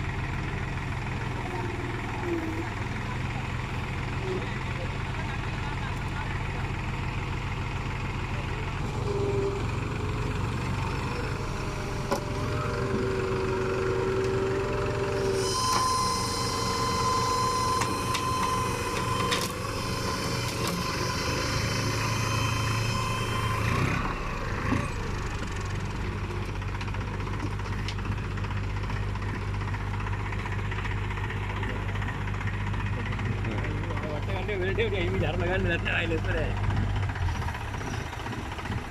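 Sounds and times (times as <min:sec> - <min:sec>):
diesel engine running: 0:00.0 - 0:38.9
high-pitched whine and clatter: 0:08.8 - 0:38.9.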